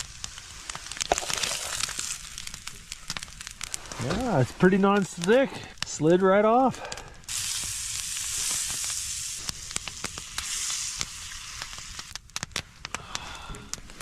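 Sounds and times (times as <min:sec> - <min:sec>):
food sizzling in skillet: 0:00.0 - 0:05.4, 0:07.2 - 0:12.2
sharp crackles and pops: 0:00.0 - 0:14.0.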